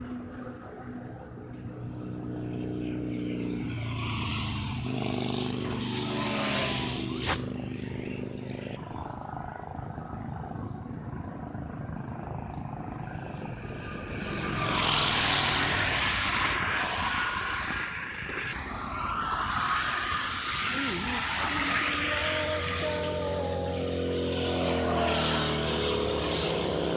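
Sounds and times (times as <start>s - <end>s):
motorcycle engines thumping: 3.0s - 17.2s.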